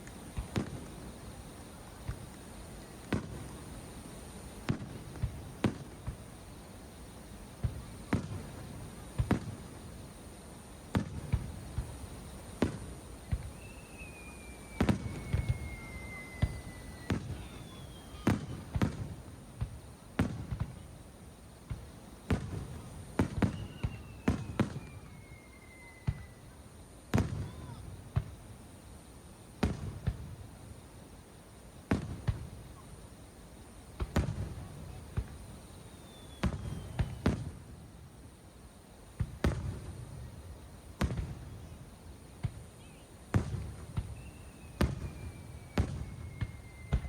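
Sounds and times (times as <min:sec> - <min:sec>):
fireworks bangs: 0:00.0 - 0:10.2, 0:10.8 - 0:21.0, 0:21.6 - 0:28.6, 0:29.6 - 0:30.6, 0:31.8 - 0:32.9, 0:34.0 - 0:37.9, 0:39.2 - 0:47.0
descending firework whistle: 0:11.0 - 0:20.8, 0:21.8 - 0:28.4, 0:34.0 - 0:37.6, 0:42.5 - 0:47.0.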